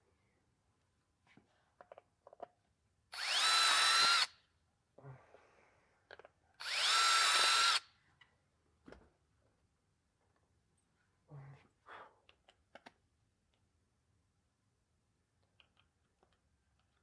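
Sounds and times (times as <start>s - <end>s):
power drill whining: 3.2s - 4.3s, 6.6s - 7.8s.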